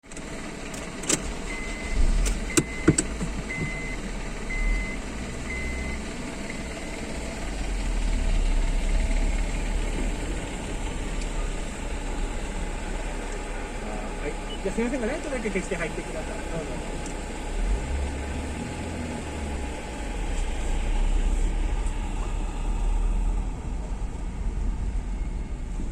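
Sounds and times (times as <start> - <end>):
car engine low rumble: 0.0 - 25.9
short high beeps: 1.5 - 6.0.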